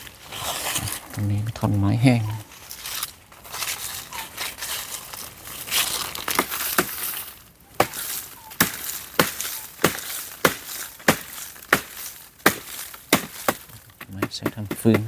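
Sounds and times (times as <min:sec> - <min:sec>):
crunching and rustling in dry brush: 0:00.0 - 0:15.0
chopping blows into dry wood: 0:06.2 - 0:07.2, 0:07.8 - 0:15.0.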